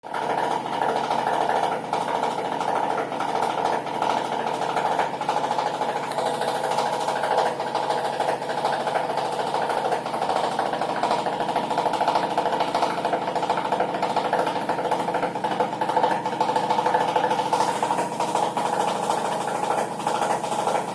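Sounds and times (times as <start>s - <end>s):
washing machine spinning: 0.0s - 20.9s
rapid knocking inside machine: 0.1s - 20.9s.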